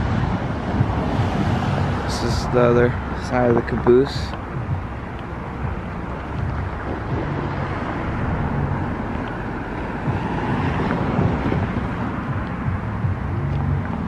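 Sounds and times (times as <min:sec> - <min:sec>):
road traffic rumble: 0:00.0 - 0:14.0
wind buffeting microphone: 0:00.0 - 0:14.0.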